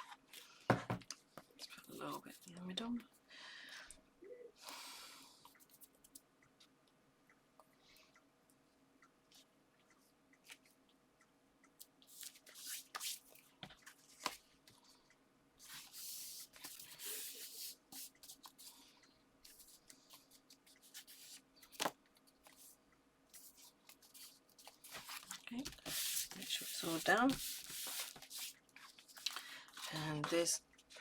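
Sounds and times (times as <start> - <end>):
paper rustling and rubbing: 23.4 - 30.2.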